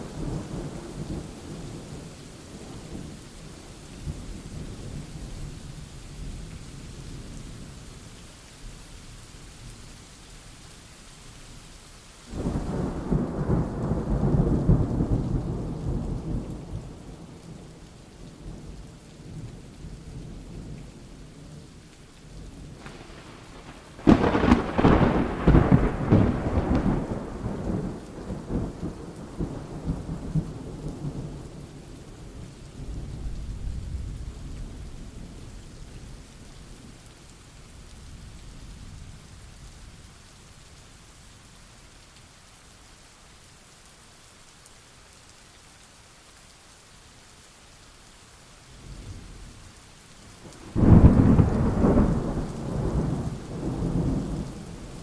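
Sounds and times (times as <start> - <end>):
steady rain: 0.0 - 55.0
thunderclaps rumbling: 22.6 - 31.5, 50.5 - 55.0.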